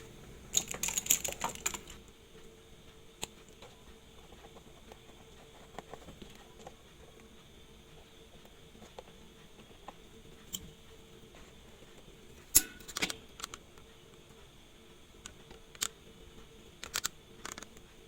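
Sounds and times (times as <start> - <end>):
faint steady hum: 0.0 - 18.0
small metal tools clicking: 0.5 - 2.0.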